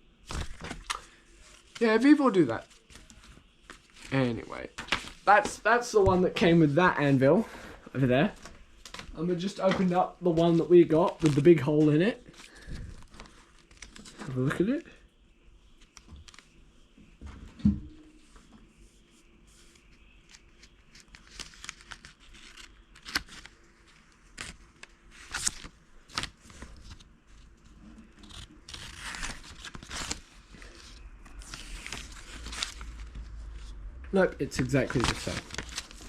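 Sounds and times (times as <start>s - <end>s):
packaging crinkling and tearing: 12.4s - 14.4s, 20.3s - 27.0s, 28.1s - 33.2s, 34.5s - 36.0s.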